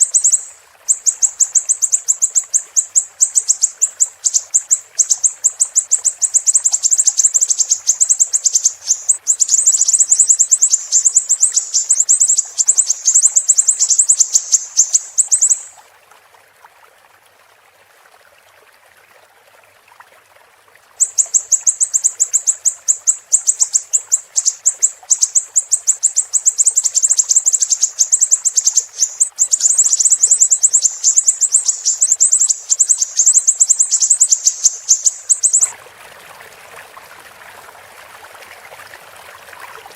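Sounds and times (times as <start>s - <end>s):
high-pitched bird chirps: 0.0s - 15.8s, 21.0s - 35.7s
faint steady hiss: 0.0s - 39.9s.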